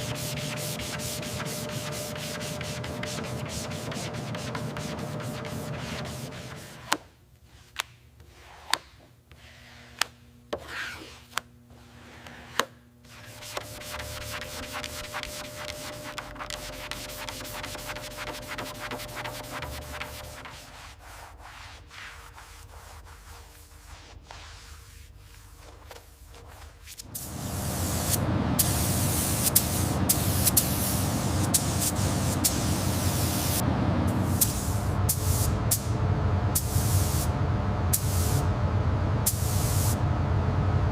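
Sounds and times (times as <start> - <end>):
fast rubbing strokes on a surface: 0.0 - 6.9, 13.1 - 27.0
faint steady hum: 9.0 - 21.2, 23.2 - 40.9
pressurised spray hissing: 27.0 - 35.9, 36.6 - 37.3
low motor hum: 27.1 - 40.9.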